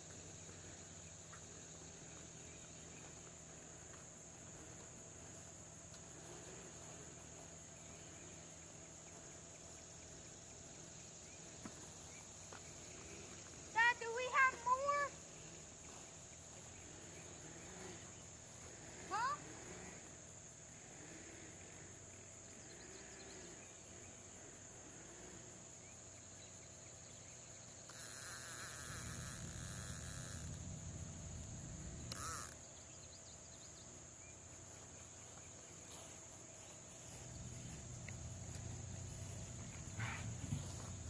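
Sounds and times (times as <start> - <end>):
crickets and insects trilling: 0.0 - 41.0
rustling hiss: 0.0 - 41.0
low hum: 28.6 - 32.5.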